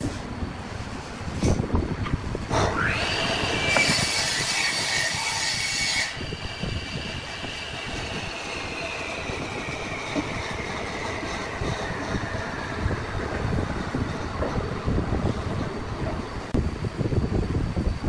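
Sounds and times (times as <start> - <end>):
lathe whine: 2.4 - 18.0
hiss of tool cutting wood: 2.5 - 10.6.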